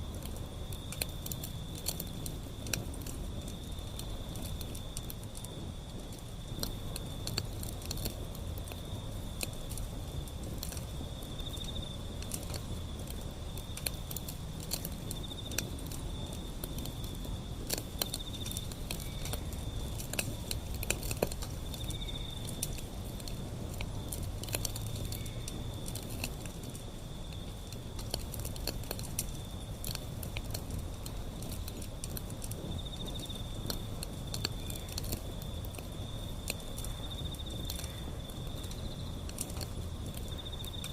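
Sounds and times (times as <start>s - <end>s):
insect trill: 0.0s - 40.9s
low rumble of flame: 0.0s - 40.9s
wood fire crackling and popping: 0.0s - 40.9s.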